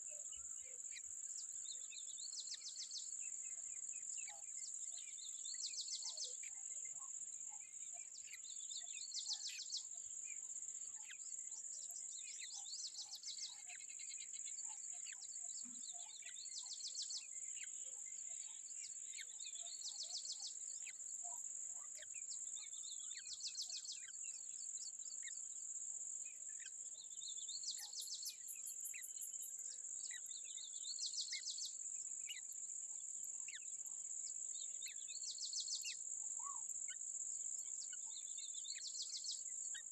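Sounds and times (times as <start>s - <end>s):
faint bird chirps: 0.0s - 39.9s
rapid pulsed insect trill: 27.2s - 39.9s.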